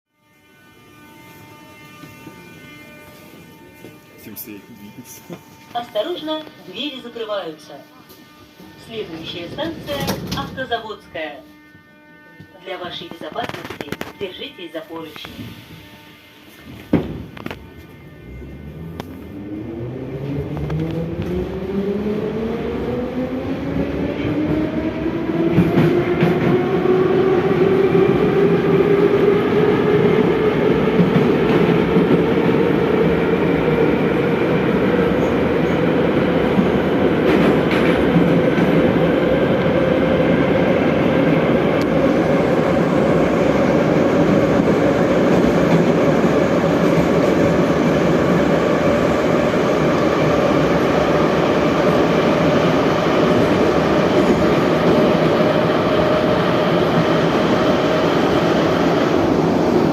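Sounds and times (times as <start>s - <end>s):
train traction motor whine: 0.2s - 59.9s
train wheels on track: 9.0s - 10.8s, 18.7s - 59.9s.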